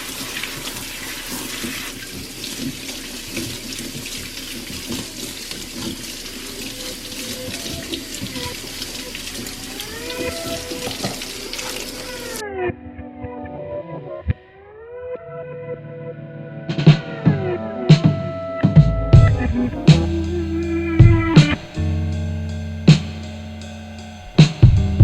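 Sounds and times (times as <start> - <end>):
tap water running into sink: 0.0 - 12.4
music with gliding tones: 7.2 - 25.0.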